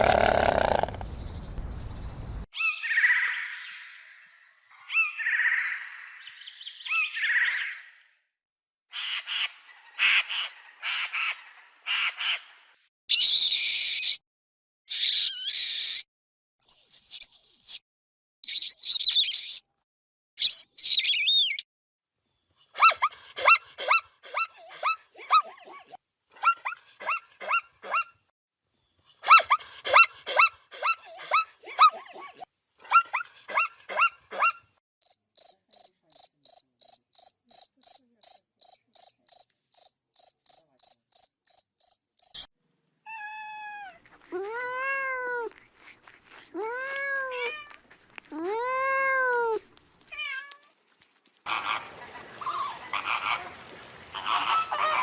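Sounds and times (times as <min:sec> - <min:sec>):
cricket chirping: 0:35.0 - 0:42.5
cat meowing: 0:43.1 - 0:45.6, 0:46.3 - 0:47.8.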